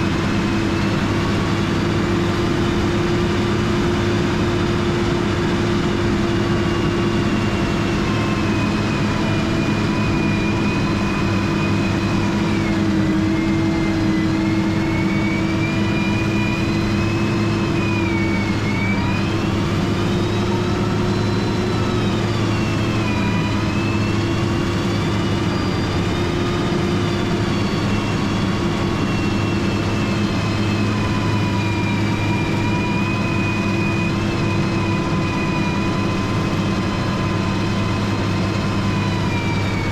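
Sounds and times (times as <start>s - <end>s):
diesel engine running: 0.0s - 39.9s
high whine: 0.0s - 39.9s.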